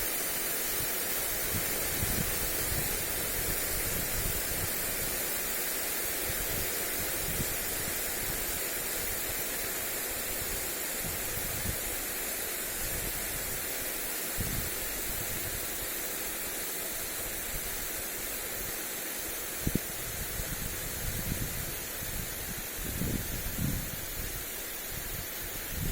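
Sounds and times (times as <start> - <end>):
sprinkler spray hissing on grass: 0.0 - 25.9
wind rumble on microphone: 1.3 - 5.2, 6.2 - 8.5, 10.3 - 12.0, 14.4 - 15.7, 19.6 - 25.9.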